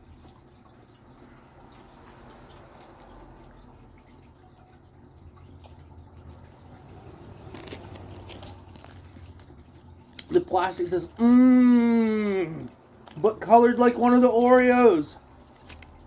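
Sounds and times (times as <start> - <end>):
crackle of movement: 5.6 - 11.5, 12.3 - 13.5, 15.4 - 16.0
wet chewing: 7.2 - 11.4.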